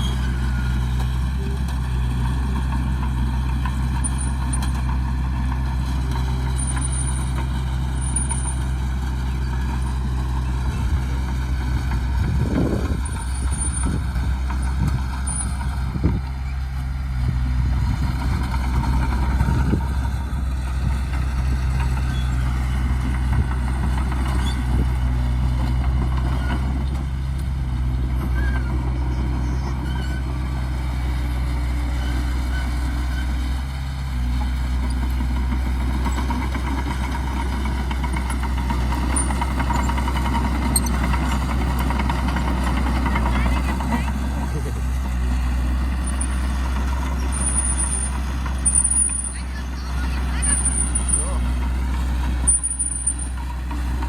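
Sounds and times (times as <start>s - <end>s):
diesel machinery engine running: 0.0s - 54.0s
rumbling scraping: 6.2s - 16.2s.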